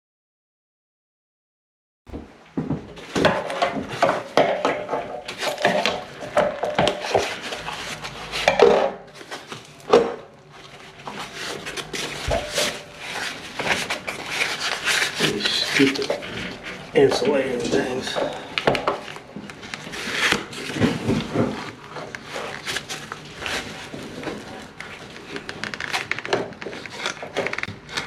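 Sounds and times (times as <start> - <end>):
knocks and rubbing: 2.6 - 25.5.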